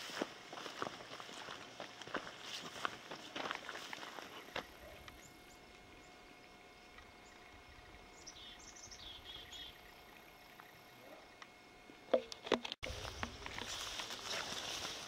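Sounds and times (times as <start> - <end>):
songbird chirping: 4.4 - 11.5.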